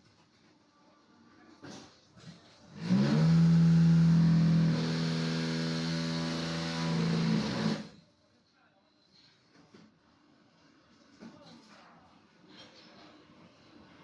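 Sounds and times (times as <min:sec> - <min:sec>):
machinery mechanical drone: 0:02.8 - 0:08.0.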